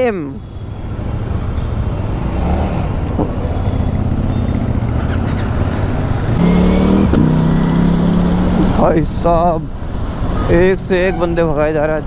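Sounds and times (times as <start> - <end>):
motorcycle engine pulling away: 6.3 - 8.6.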